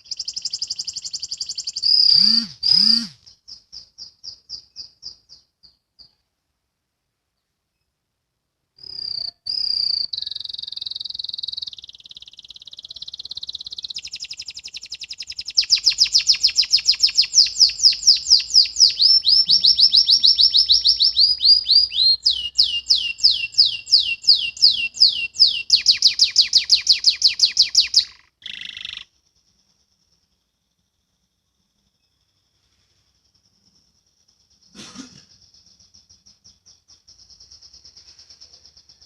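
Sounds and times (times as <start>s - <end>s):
canary singing trills: 0.0s - 6.2s, 8.8s - 30.4s.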